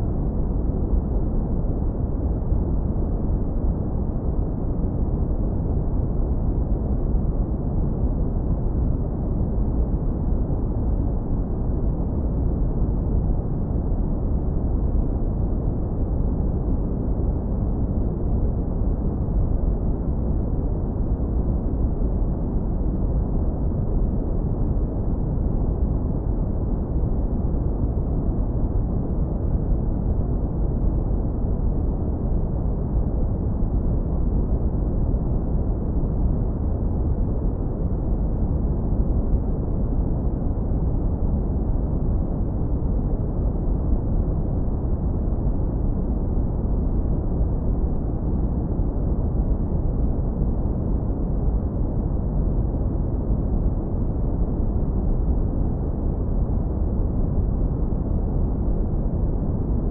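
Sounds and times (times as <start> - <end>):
deep brown noise rumble: 0.0 - 59.9.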